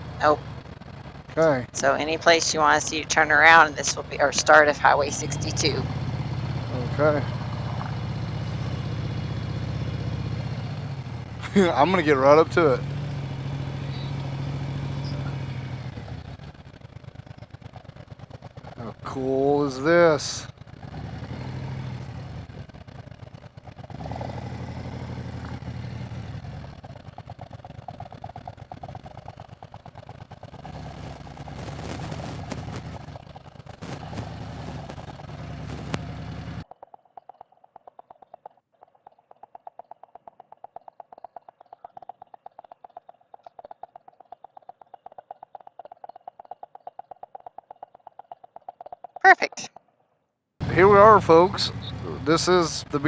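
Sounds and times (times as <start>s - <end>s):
motorcycle engine running: 0.0s - 38.4s, 50.6s - 53.0s.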